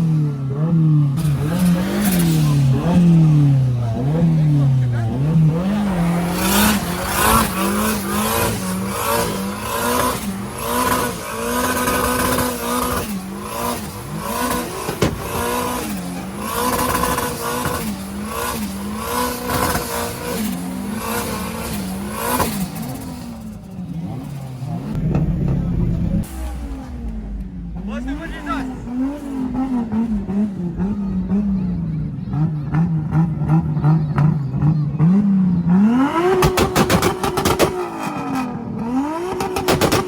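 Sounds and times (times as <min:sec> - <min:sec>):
car engine revving: 0:00.0 - 0:40.0
sharp crack: 0:14.6 - 0:15.7, 0:36.3 - 0:38.1, 0:39.4 - 0:40.0.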